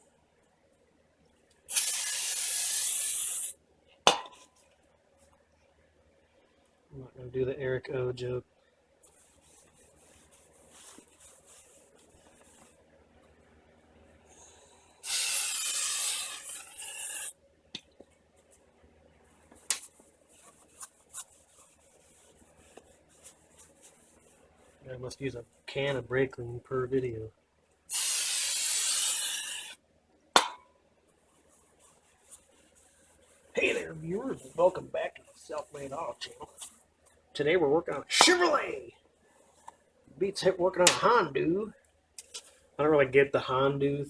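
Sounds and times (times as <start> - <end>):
aerosol spray hissing: 1.7 - 3.6, 15.0 - 17.3, 27.9 - 29.8.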